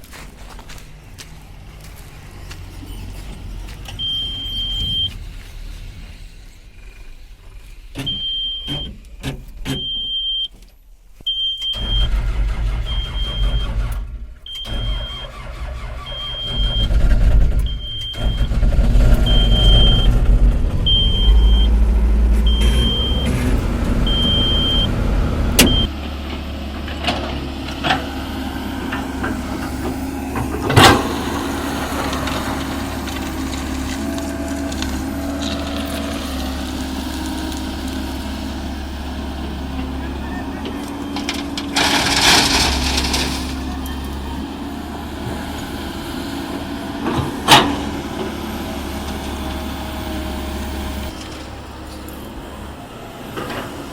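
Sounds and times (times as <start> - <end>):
heavy diesel engine running: 11.7 - 53.9
warning alarm beeping: 19.2 - 20.2, 20.8 - 21.8, 22.4 - 23.4, 24.0 - 25.0, 25.6 - 25.9.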